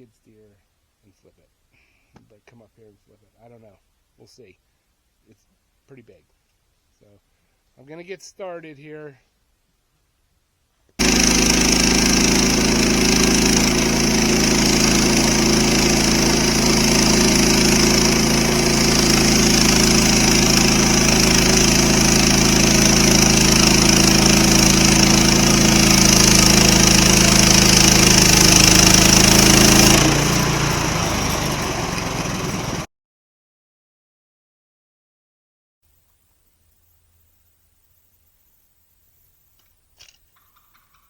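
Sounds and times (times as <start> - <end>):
sawmill engine running: 11.0 - 32.9.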